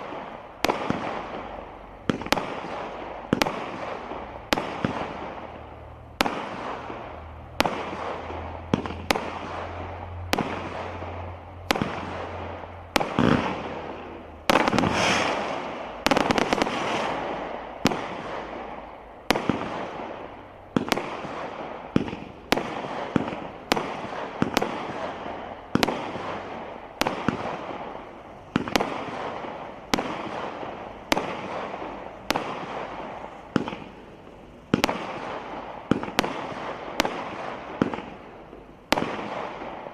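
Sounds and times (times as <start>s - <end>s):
firework bangs: 0.0s - 39.9s
firework crackle: 0.0s - 39.9s.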